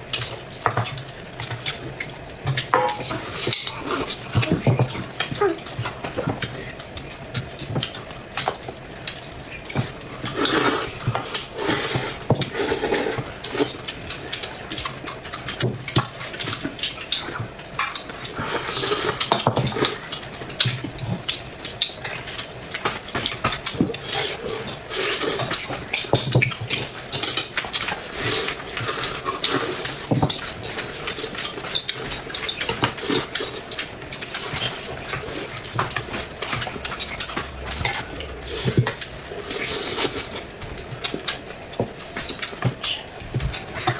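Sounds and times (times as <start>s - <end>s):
chewing and smacking: 0.0s - 43.9s
utensils clicking against dishes: 0.1s - 43.9s
slurping: 3.0s - 6.8s, 9.6s - 14.1s, 32.4s - 41.4s.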